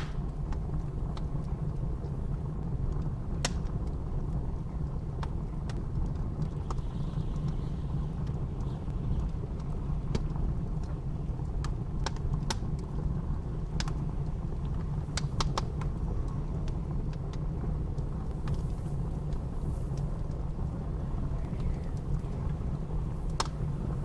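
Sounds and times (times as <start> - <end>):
blizzard wind rushing: 0.0 - 24.0
wood fire crackling: 0.0 - 24.0.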